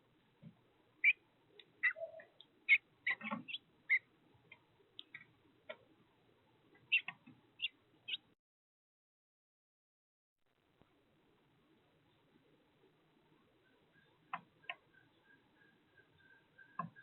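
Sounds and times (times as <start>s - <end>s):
small birds chirping: 0.4s - 5.8s, 6.7s - 8.4s, 13.4s - 17.0s.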